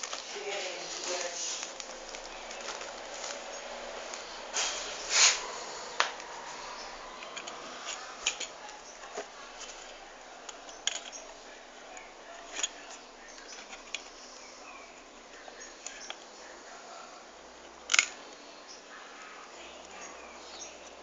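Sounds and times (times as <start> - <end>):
hands handling cardboard packaging: 0.0 - 11.3.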